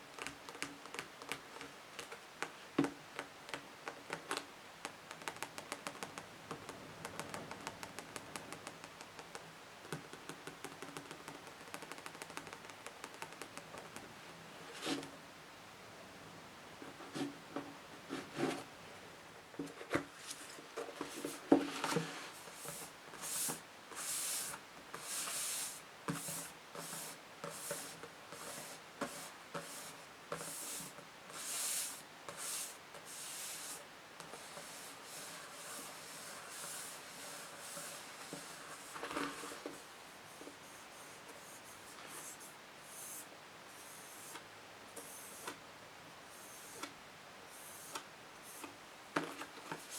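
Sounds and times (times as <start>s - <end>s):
tapping on books: 0.2s - 14.1s
hissy scratching strokes: 22.1s - 33.8s, 34.4s - 44.4s.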